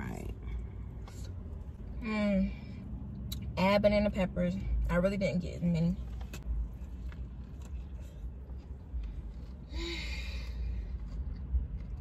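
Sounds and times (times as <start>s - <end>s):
person chewing: 6.7s - 12.0s.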